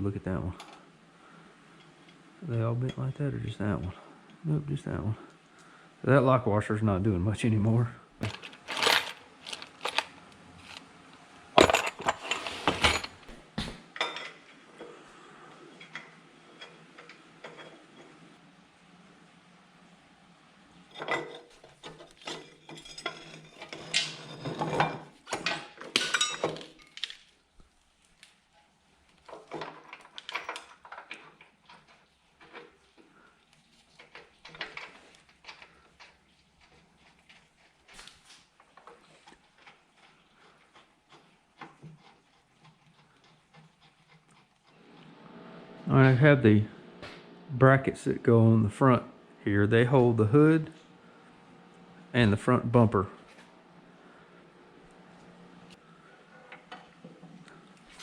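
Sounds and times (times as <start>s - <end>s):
metal bolts and washers clinking: 8.2s - 10.8s, 11.6s - 13.3s, 21.0s - 27.1s, 29.4s - 31.9s
loose metal parts clinking: 8.2s - 10.9s, 11.6s - 13.4s, 29.3s - 32.7s.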